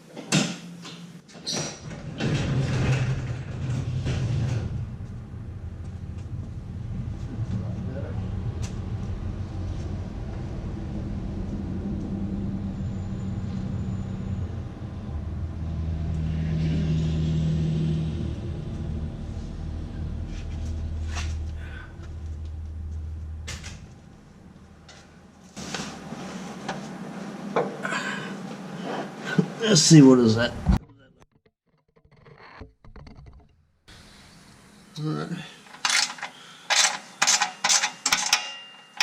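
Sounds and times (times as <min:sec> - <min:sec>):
vehicle engine rumbling: 0:01.8 - 0:29.0
sharp knocks and clinks: 0:35.8 - 0:39.0.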